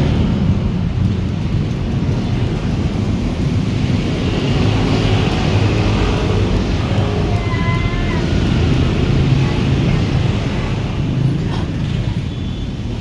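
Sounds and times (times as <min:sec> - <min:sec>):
vehicle engine running: 0:00.0 - 0:12.3
faint whistle: 0:12.3 - 0:12.8.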